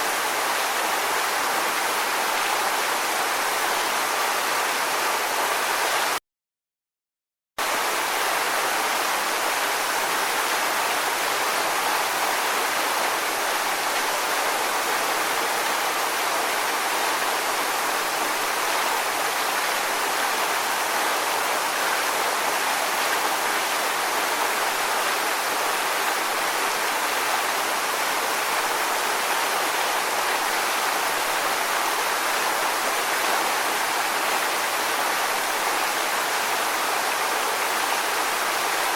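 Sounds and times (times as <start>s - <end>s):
rushing water: 0.0s - 6.2s, 7.6s - 38.9s.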